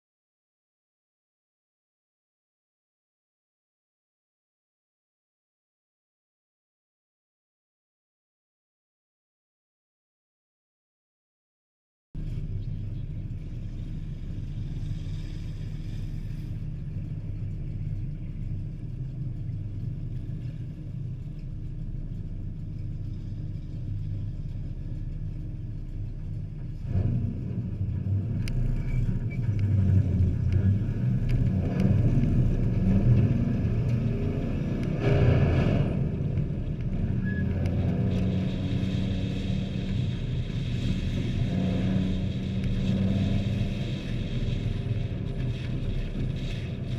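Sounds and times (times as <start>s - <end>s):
race truck engines passing: 22.8s - 46.9s.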